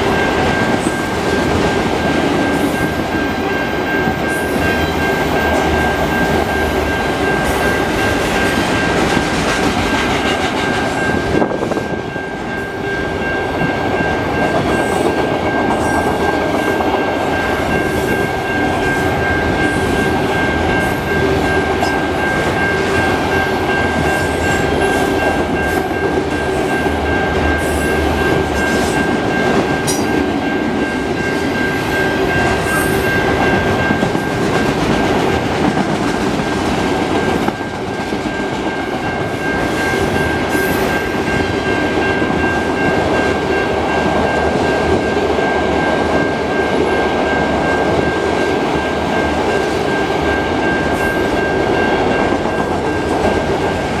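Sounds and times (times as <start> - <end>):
freight train wheels rumbling: 0.0 - 54.0
high-pitched tone: 10.6 - 34.8.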